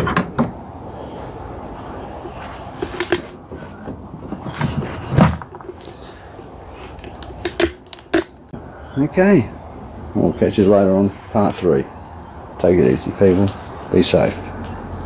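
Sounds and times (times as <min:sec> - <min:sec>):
low background noise: 0:00.0 - 0:15.0
objects clicking and knocking: 0:07.0 - 0:08.4.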